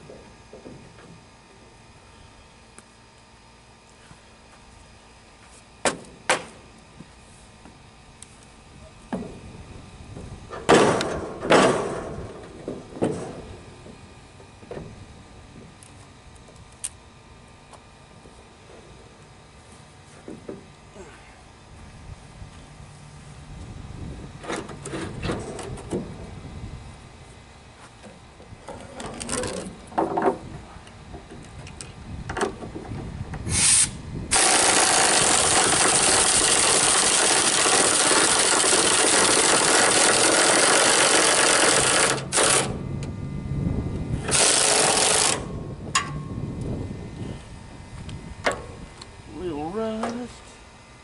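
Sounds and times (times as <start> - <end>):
knocks and clanks: 10.2 - 15.0, 28.0 - 30.4
power tool running: 33.5 - 43.0, 44.0 - 46.1.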